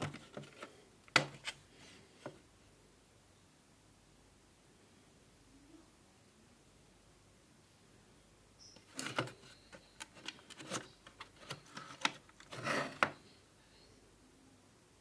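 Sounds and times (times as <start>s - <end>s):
packaging clicks: 8.8s - 13.1s
packaging rustling: 8.9s - 13.1s.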